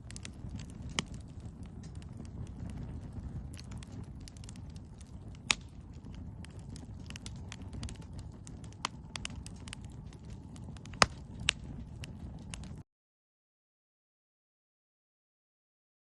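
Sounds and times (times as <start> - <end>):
campfire crackling: 0.0 - 12.8
low steady rumble: 0.0 - 12.8.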